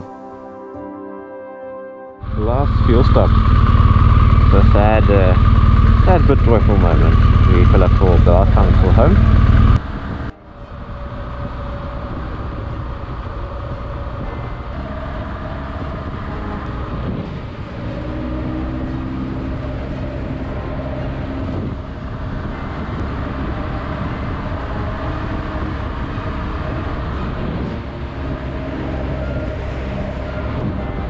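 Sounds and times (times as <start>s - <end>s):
motorcycle engine running: 2.2s - 31.0s
wind and road noise: 2.2s - 31.0s.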